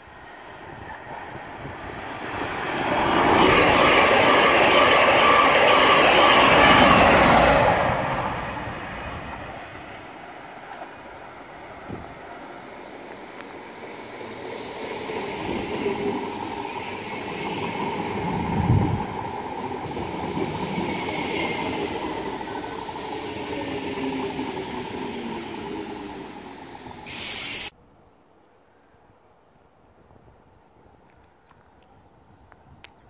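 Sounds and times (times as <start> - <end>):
electric train pulling in: 0.1 - 27.7.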